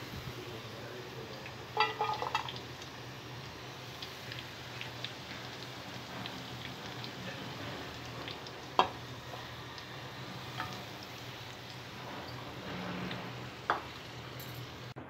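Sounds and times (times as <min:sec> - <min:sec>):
food sizzling in hot oil: 0:00.0 - 0:15.0
skimmer stirring: 0:01.3 - 0:03.0, 0:03.8 - 0:14.9.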